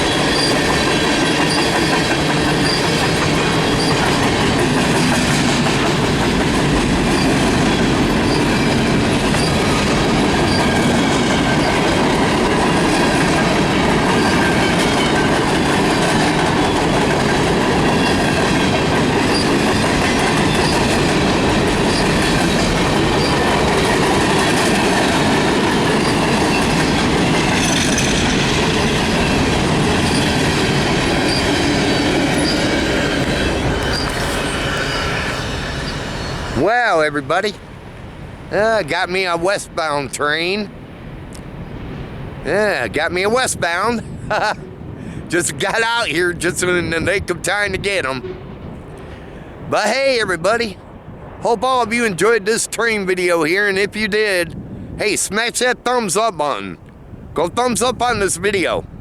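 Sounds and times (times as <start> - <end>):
wheel squeal on rail: 0.0 - 6.4, 7.0 - 12.0, 12.6 - 36.7
freight train wheels clacking: 0.0 - 37.5.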